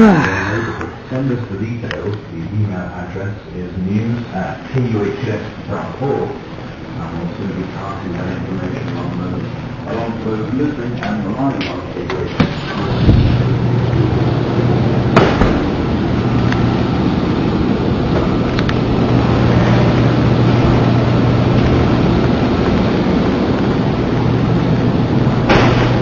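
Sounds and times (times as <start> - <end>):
constant low hum: 0.0 - 26.0
hurricane wind and rain: 0.0 - 26.0
sharp crack: 15.1 - 16.7, 25.4 - 26.0.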